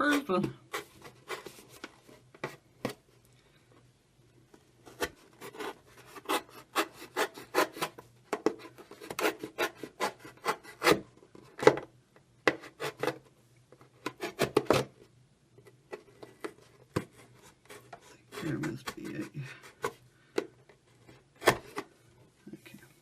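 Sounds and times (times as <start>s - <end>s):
blade sawing through plastic: 5.4s - 11.0s.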